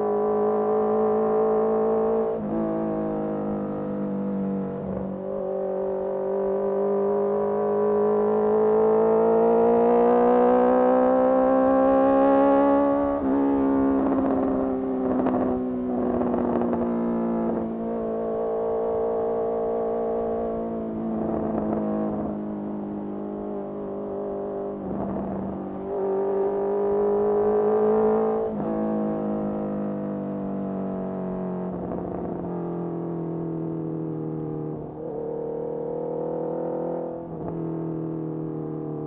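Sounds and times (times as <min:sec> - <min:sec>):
motorcycle engine revving: 0:03.5 - 0:22.4, 0:33.7 - 0:38.2.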